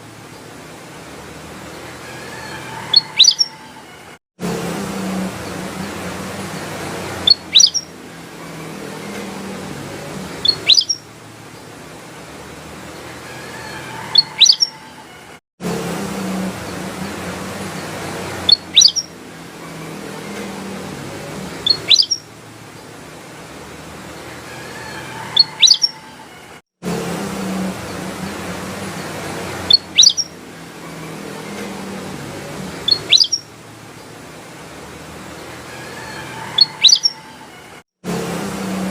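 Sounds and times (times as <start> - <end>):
bulbul calling: 2.8 - 3.8, 7.2 - 7.9, 10.4 - 11.1, 14.1 - 14.9, 18.4 - 19.2, 21.6 - 22.3, 25.2 - 26.2, 29.7 - 30.4, 32.8 - 33.5, 36.6 - 37.2
bird singing whistled notes: 2.9 - 3.6, 7.2 - 7.9, 10.4 - 11.0, 14.1 - 14.8, 18.5 - 19.1, 21.6 - 22.2, 25.4 - 26.0, 29.7 - 30.3, 32.8 - 33.5, 36.6 - 37.2.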